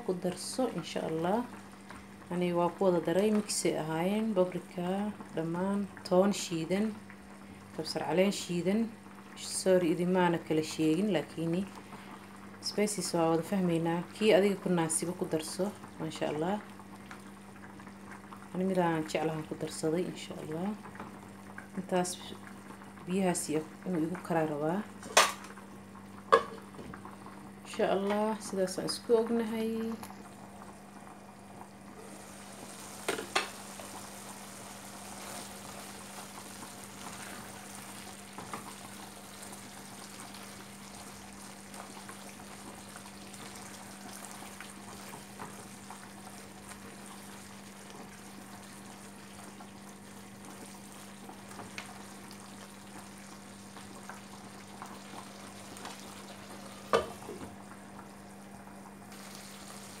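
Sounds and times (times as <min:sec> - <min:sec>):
chicken sizzling in a frying pan: 0:00.0 - 1:00.0.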